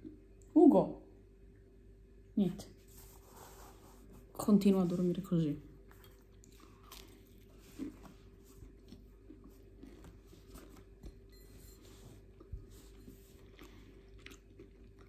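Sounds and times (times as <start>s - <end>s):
faint low hum: 0.0s - 15.0s
quiet chewing: 5.8s - 15.0s.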